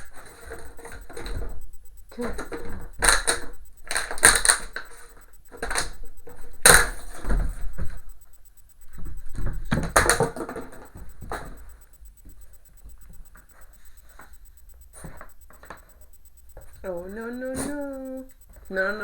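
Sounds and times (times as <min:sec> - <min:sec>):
toy bumping on floor: 0:08.9 - 0:13.5.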